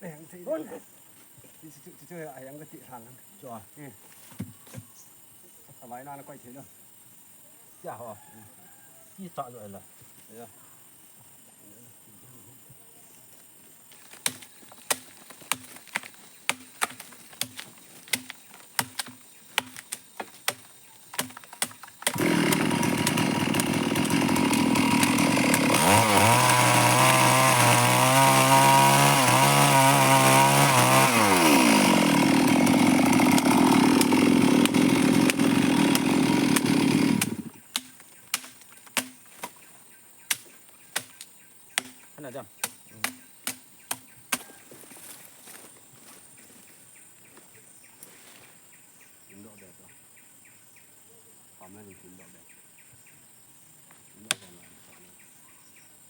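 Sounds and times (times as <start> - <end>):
chainsaw running: 21.2 - 37.6.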